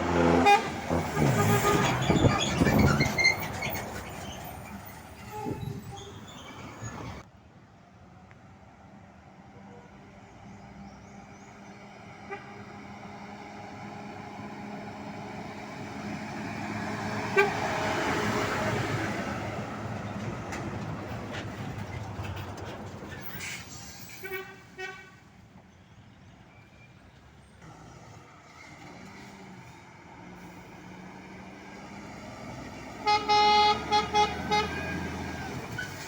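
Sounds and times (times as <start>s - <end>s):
truck air horn: 0.0s - 2.6s, 5.2s - 6.2s, 12.2s - 12.8s, 17.2s - 18.0s, 24.0s - 25.2s, 32.9s - 35.2s
truck engine passing by: 0.0s - 7.2s, 11.5s - 24.2s, 27.6s - 36.0s.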